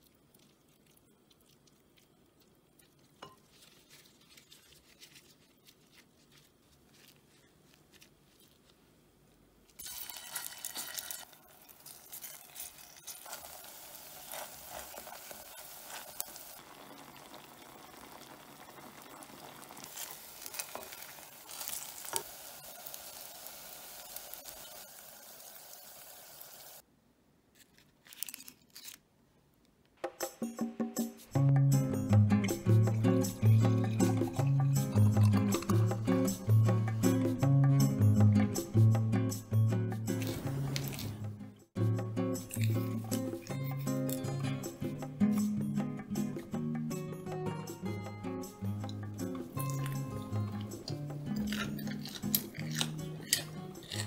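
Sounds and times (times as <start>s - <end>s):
faint handling sounds: 0.2s - 9.8s, 27.5s - 30.0s
pancakes sizzling in oil: 9.8s - 26.8s
wooden spatula scraping: 12.1s - 16.4s.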